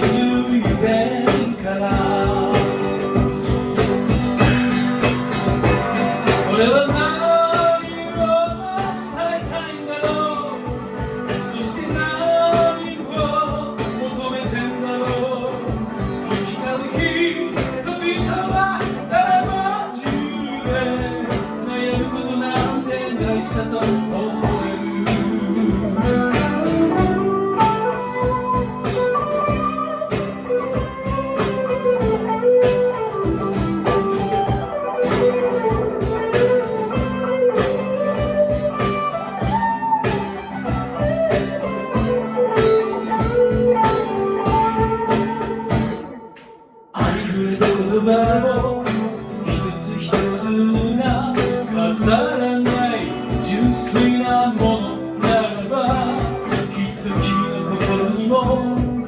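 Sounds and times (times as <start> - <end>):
person singing: 0.0 - 5.0, 6.0 - 28.1, 47.0 - 59.0
strummed guitar: 0.0 - 59.0.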